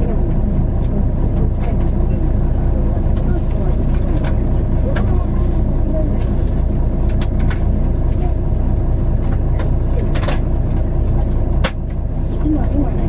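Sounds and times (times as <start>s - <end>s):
bus engine drone: 0.0s - 13.0s
road rumble: 0.0s - 13.0s
rattles and clicks: 3.0s - 13.0s.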